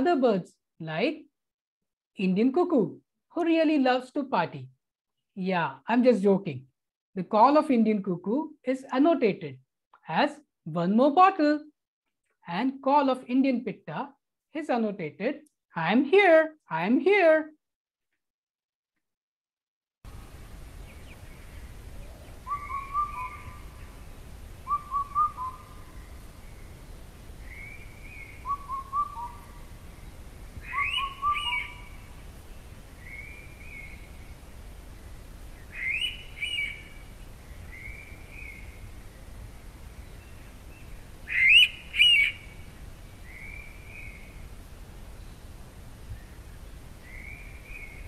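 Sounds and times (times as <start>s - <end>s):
soft calls of other birds: 20.6s - 26.8s, 27.4s - 32.2s, 35.6s - 39.2s, 40.0s - 44.4s.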